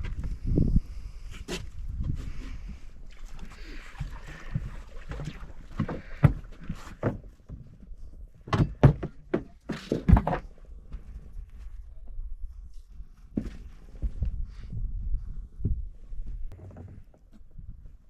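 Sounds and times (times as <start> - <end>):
thuds and knocks on a boat: 5.7 - 10.5.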